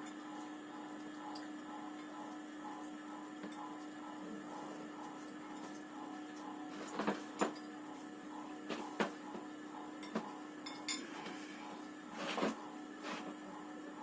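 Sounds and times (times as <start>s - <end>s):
cutlery clinking against dishes: 10.0s - 11.4s.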